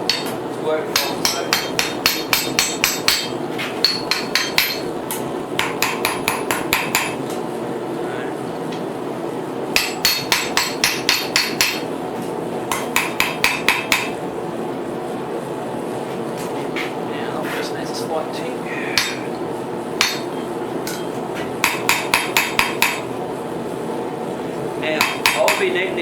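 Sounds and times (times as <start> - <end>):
hammer striking steel on anvil: 0.0 - 7.2, 9.8 - 11.9, 12.7 - 14.2, 19.0 - 19.3, 20.0 - 23.1, 25.0 - 25.8.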